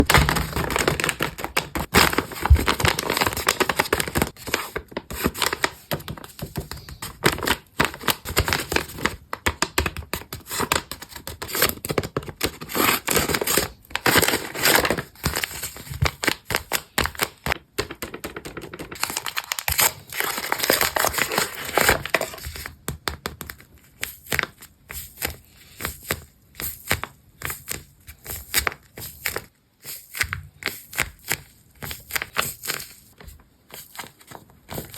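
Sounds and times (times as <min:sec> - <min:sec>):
paper crinkling and rustling: 0:00.0 - 0:22.7.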